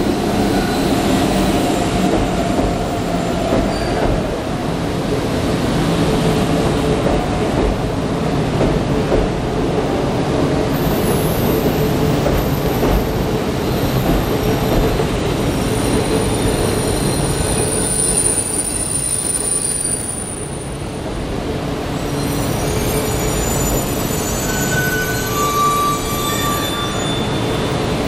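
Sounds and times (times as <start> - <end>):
train rolling rumble: 0.0 - 28.0
high wheel squeal: 3.6 - 4.1, 15.5 - 20.7, 22.0 - 28.0.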